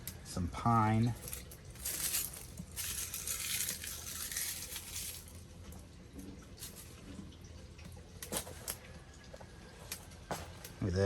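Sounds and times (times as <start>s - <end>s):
wood rustling and crackling: 1.0s - 7.3s.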